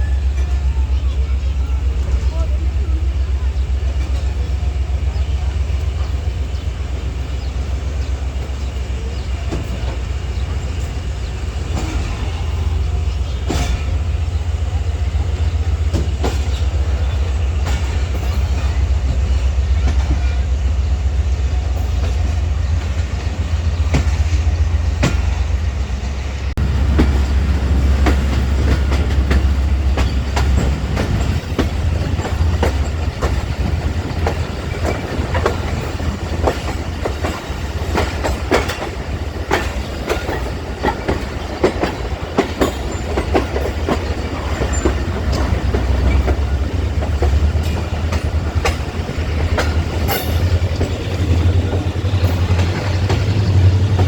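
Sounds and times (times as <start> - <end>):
train rumble: 0.0 - 54.0
wheels clicking over rail joints: 26.6 - 54.0.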